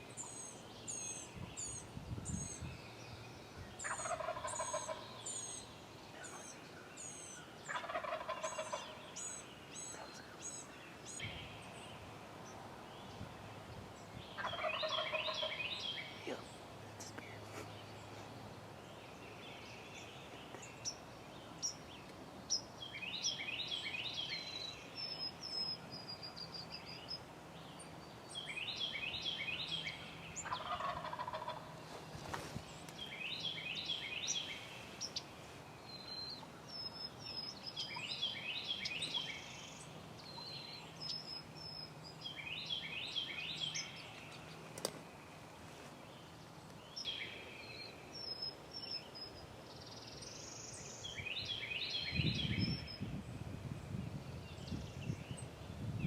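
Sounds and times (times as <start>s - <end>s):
turkey gobbling: 3.8s - 5.0s, 7.7s - 9.0s, 14.4s - 15.6s, 30.4s - 31.7s.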